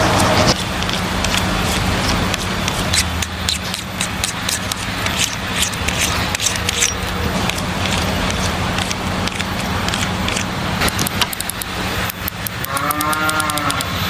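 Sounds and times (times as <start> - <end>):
steady low hum: 0.0 - 14.0
small clicks and handling noises: 8.8 - 13.9.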